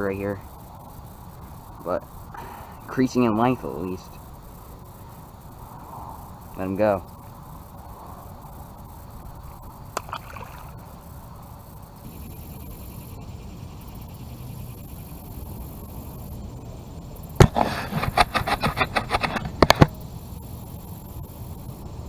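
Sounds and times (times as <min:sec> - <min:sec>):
outdoor background noise: 0:00.0 - 0:22.0
sharp knock: 0:17.4 - 0:19.9.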